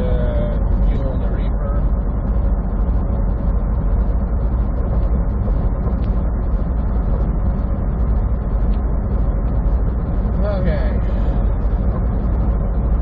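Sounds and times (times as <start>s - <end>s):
road noise: 0.0s - 13.0s
truck engine rumble: 0.0s - 13.0s.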